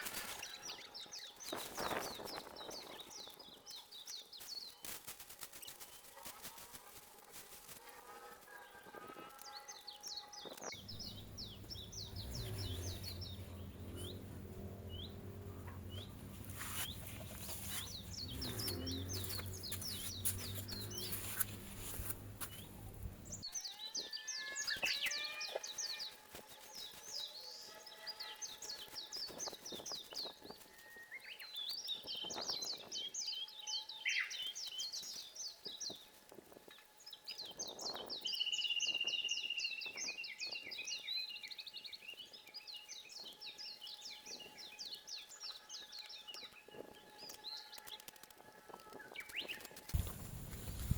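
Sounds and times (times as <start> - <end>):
songbirds chirping trills: 0.0 - 50.1.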